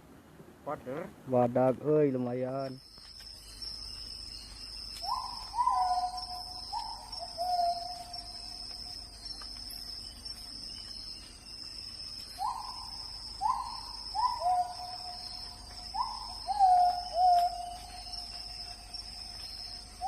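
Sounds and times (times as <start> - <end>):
insect chorus: 0.8 - 20.0
hooting animal calls: 5.0 - 8.6, 12.4 - 18.3.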